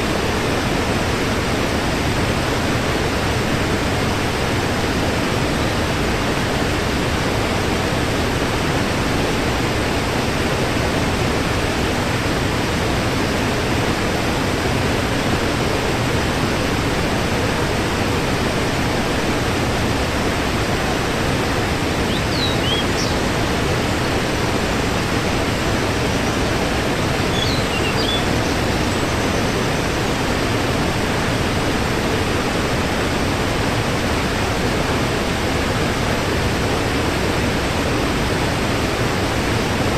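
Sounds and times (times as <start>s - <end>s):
waterfall rushing: 0.0s - 39.9s
faint high chirps: 22.1s - 23.2s, 27.3s - 29.6s.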